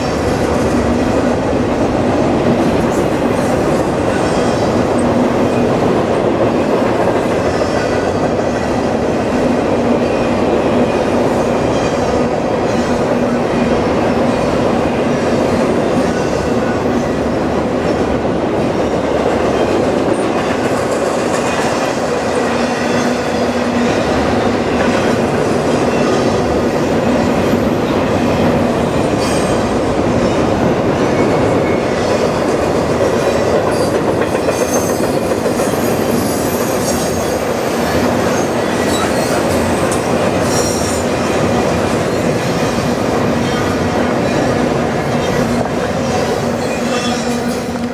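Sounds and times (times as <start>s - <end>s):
train wheels rumbling on rail: 0.0s - 47.9s
rail joints clicking: 17.8s - 47.9s.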